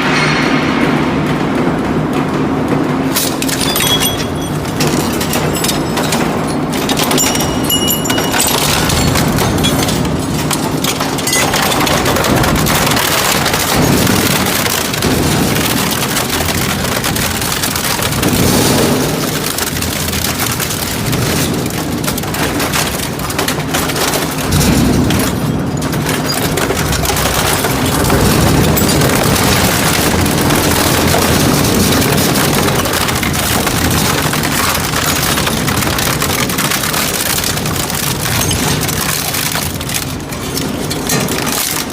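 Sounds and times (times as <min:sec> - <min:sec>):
metal shredder grinding scrap: 0:03.2 - 0:41.9.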